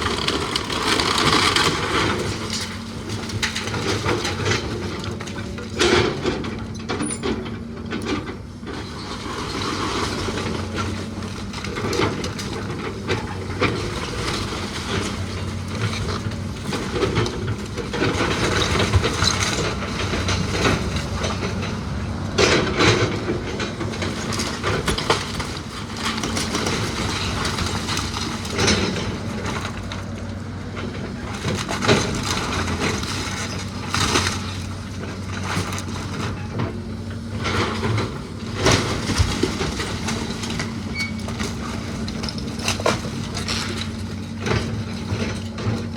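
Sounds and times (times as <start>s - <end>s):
heavy machine engine running: 0.0s - 45.9s
wood crunching and cracking: 9.7s - 45.9s.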